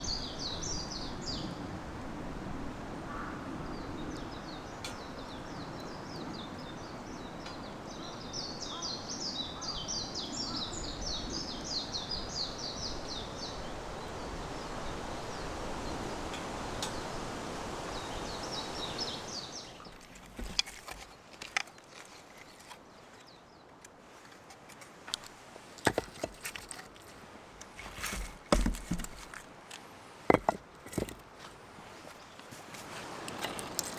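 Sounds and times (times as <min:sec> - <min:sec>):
birds chirping: 0:03.1 - 0:23.9
knocks and cracks of wood: 0:19.8 - 0:22.8, 0:24.3 - 0:31.3.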